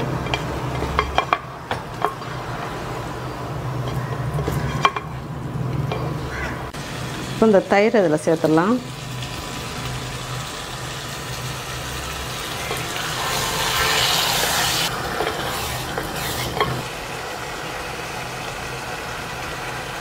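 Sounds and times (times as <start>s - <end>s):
spoon scraping a pot: 0.0s - 2.8s, 3.8s - 5.2s, 12.6s - 16.9s
food sizzling in a pot: 6.8s - 20.0s.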